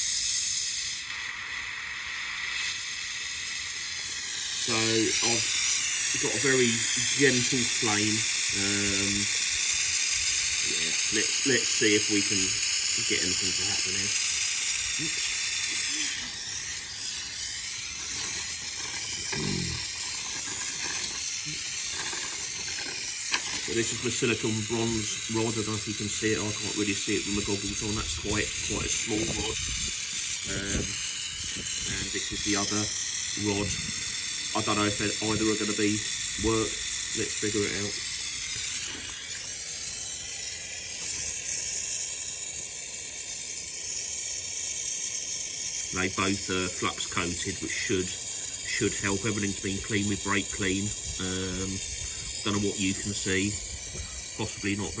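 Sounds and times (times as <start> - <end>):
gas torch flame hissing: 0.0 - 55.0
man humming: 19.3 - 20.0.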